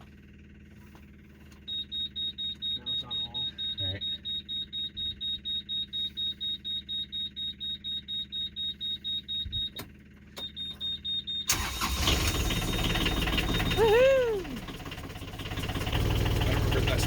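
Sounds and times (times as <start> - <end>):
engine running: 0.0 - 17.0
engine starter cranking: 11.4 - 17.0.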